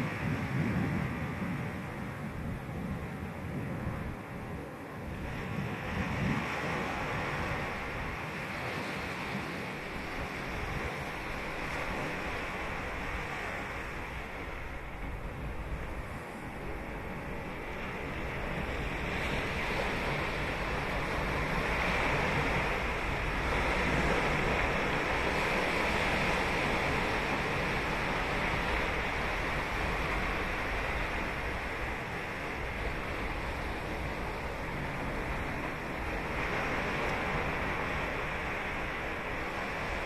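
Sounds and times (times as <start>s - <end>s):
wave breaking on beach: 15.9s - 40.0s.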